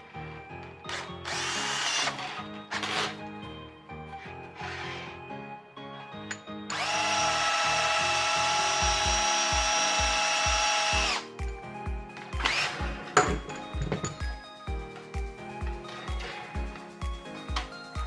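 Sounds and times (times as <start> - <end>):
power tool motor whining: 0.8 - 3.2, 4.6 - 5.2, 6.7 - 11.3, 12.4 - 13.0
background music with beat: 8.7 - 18.0.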